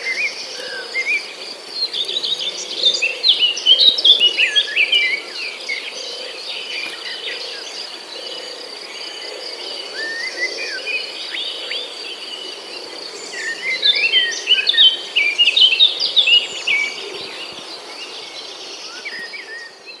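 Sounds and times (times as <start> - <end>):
birds chirping and calling: 0.0 - 20.0
high insect drone: 0.0 - 20.0.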